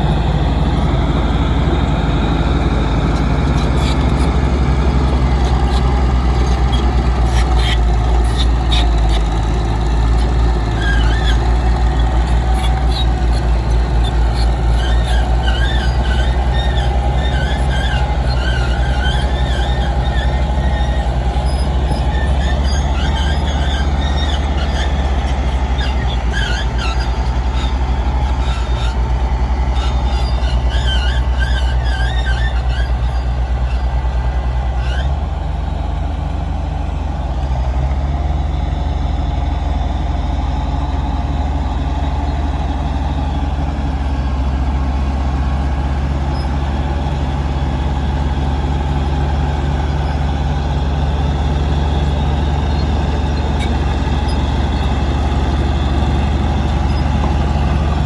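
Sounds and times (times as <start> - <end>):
diesel engine drone: 0.0 - 58.0
chirping metallic squeals: 2.0 - 34.0, 34.8 - 35.2, 46.2 - 47.1, 49.4 - 58.0.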